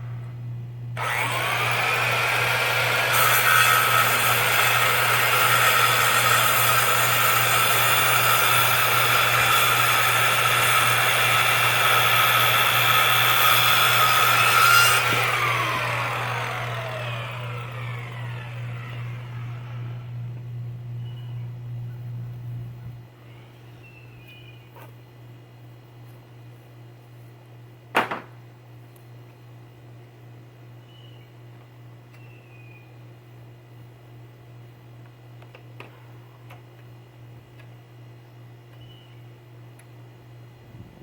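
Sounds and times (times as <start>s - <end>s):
power saw cutting: 1.0s - 20.1s.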